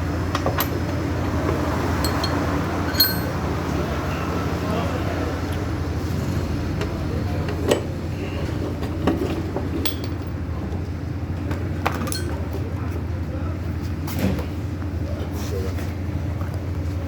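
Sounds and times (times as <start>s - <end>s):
metal tools clinking and knocking: 2.0s - 3.4s, 9.8s - 10.4s, 12.0s - 12.4s.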